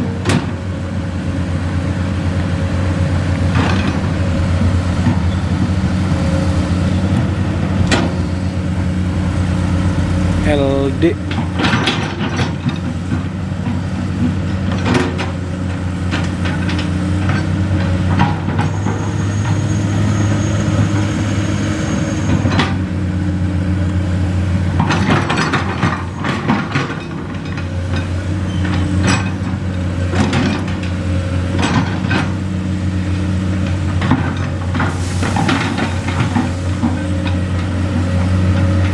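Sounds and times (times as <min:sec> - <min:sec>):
diesel truck engine running: 0:00.0 - 0:38.9
sharp knocks and rattles: 0:10.4 - 0:15.4.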